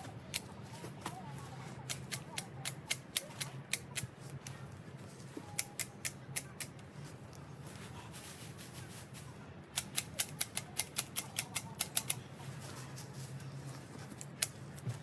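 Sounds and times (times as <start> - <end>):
hand shears snipping: 1.8 - 4.6, 5.5 - 6.8, 9.8 - 12.2.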